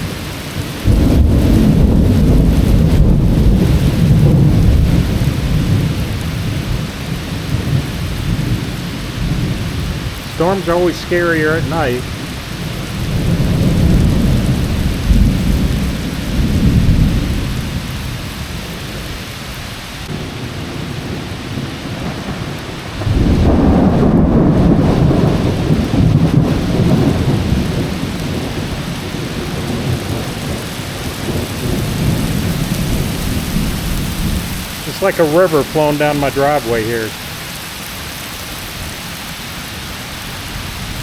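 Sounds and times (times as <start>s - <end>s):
rolling thunder: 0.0s - 19.2s, 20.0s - 37.3s
heavy rain pouring: 0.0s - 41.0s.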